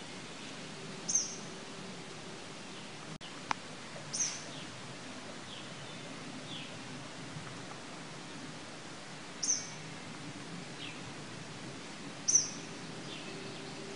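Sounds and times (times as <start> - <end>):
birds chirping: 0.4 - 1.5, 4.1 - 4.8, 9.4 - 9.8, 12.3 - 13.9.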